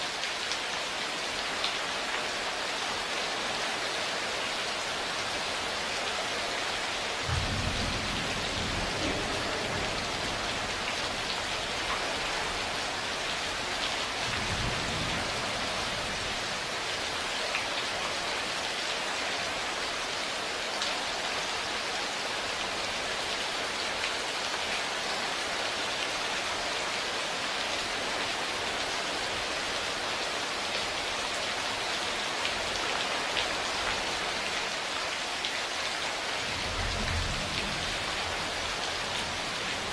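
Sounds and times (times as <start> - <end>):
rain pattering: 0.0 - 39.9
low thunder rumbles: 7.2 - 11.8, 36.5 - 38.6.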